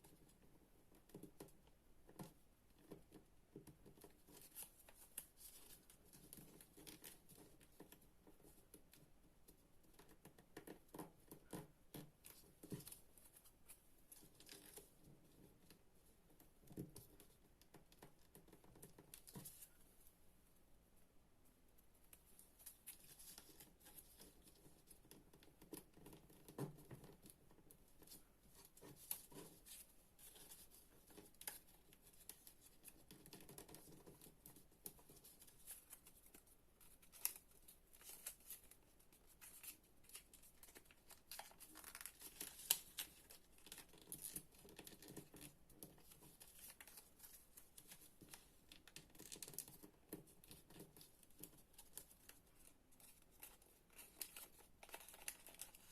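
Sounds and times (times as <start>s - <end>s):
paper rustling and crinkling: 22.3s - 55.9s
crisp paper fold clicks: 28.0s - 55.9s.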